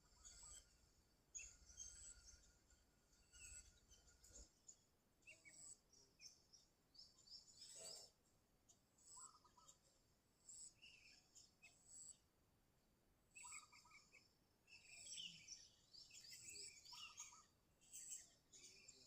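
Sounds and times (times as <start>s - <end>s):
birds chirping: 13.4s - 19.0s.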